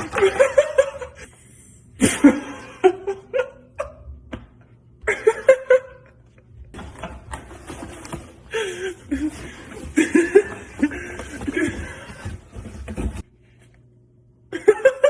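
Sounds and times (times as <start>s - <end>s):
person laughing: 2.0s - 4.2s, 5.0s - 6.3s, 8.5s - 12.4s, 14.5s - 15.0s.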